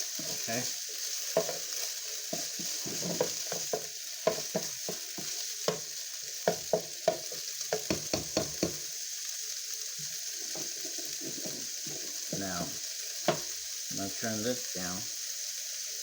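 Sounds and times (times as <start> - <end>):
food sizzling in oil: 0.0 - 16.0
utensil scraping a cooking pot: 0.1 - 7.9, 10.4 - 12.6.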